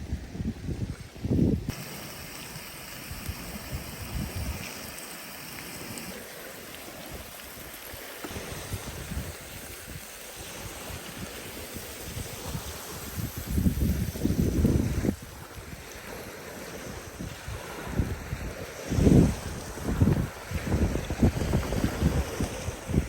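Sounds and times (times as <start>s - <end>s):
wind buffeting microphone: 0.0s - 5.0s, 6.8s - 23.0s
steak sizzling in a pan: 1.7s - 14.4s.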